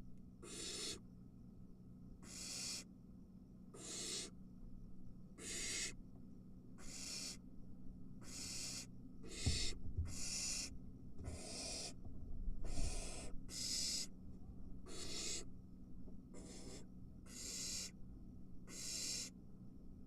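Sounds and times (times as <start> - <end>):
owl nestlings hissing calls: 0.4 - 1.0, 2.2 - 2.9, 3.7 - 4.4, 5.4 - 6.0, 6.8 - 7.4, 8.2 - 12.0, 12.6 - 14.1, 14.8 - 15.5, 16.4 - 18.0, 18.7 - 19.3
low thumps in nest box: 9.4 - 10.4.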